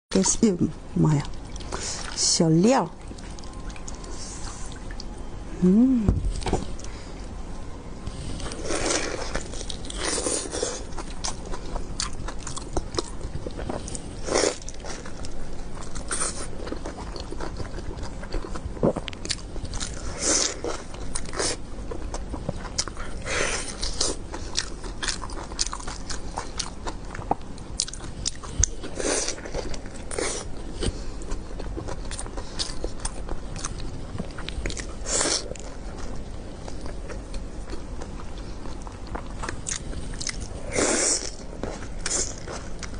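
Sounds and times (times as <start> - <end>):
person humming: 5.5 - 6.3
person chewing and biting: 8.4 - 42.9.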